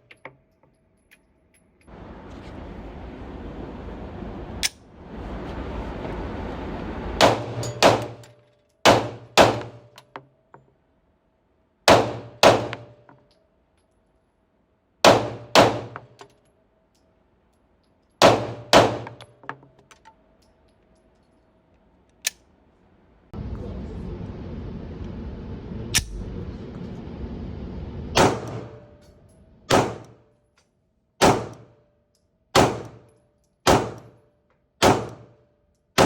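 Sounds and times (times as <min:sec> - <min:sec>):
small metallic clinks: 0:00.0 - 0:02.0, 0:13.0 - 0:14.4, 0:16.1 - 0:18.2, 0:19.2 - 0:22.5, 0:31.9 - 0:32.5, 0:33.1 - 0:34.7, 0:35.6 - 0:36.0
pistol shots: 0:07.2 - 0:09.9, 0:11.9 - 0:13.0, 0:15.0 - 0:16.0, 0:18.2 - 0:19.2, 0:28.2 - 0:28.8, 0:29.7 - 0:30.2, 0:31.2 - 0:31.8, 0:32.6 - 0:33.1, 0:33.7 - 0:34.2, 0:34.8 - 0:35.4.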